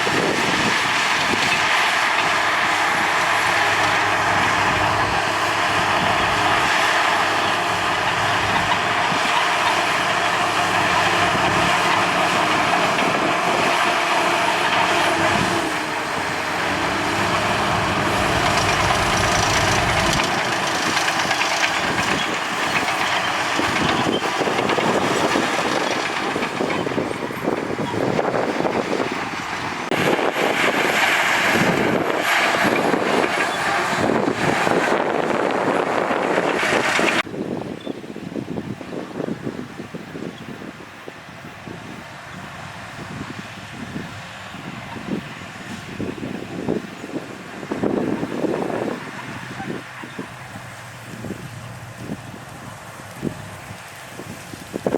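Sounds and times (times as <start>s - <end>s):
steel tracks clanking: 0.0s - 37.3s
bulldozer diesel engine running: 0.0s - 54.9s
irregular clatter: 0.2s - 37.3s.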